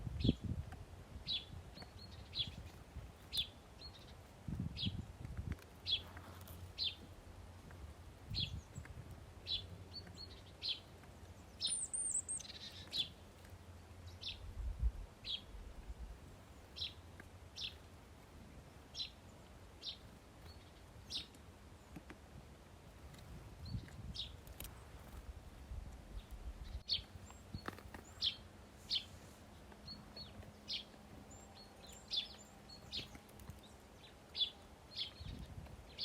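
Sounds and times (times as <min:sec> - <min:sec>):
songbird chirping: 0:01.2 - 0:36.0.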